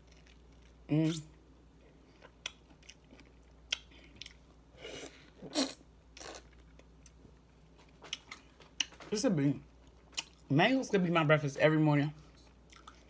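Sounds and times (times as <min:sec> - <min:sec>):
person chewing wetly: 0:02.0 - 0:04.5, 0:09.8 - 0:10.5, 0:12.5 - 0:13.0.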